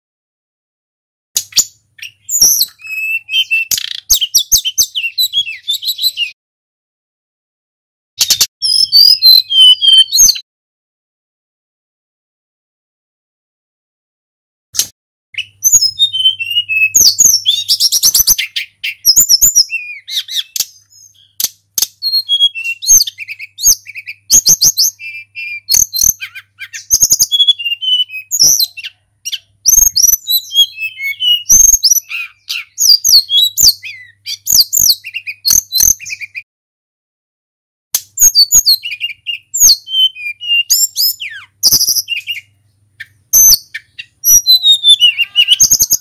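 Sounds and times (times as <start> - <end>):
bird singing whistled song: 1.4 - 6.4, 8.2 - 10.4, 14.8 - 36.5, 38.0 - 46.0.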